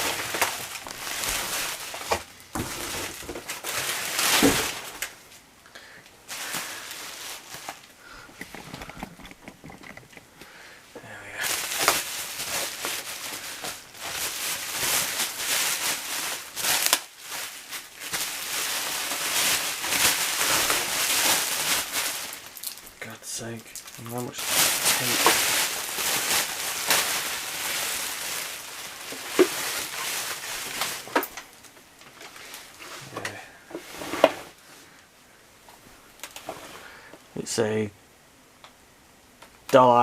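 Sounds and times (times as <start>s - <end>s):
packaging crinkling and rustling: 0.0s - 5.4s, 6.3s - 10.5s, 11.4s - 34.6s, 36.2s - 36.7s
packing tape ripping: 11.5s - 22.9s, 23.8s - 31.5s.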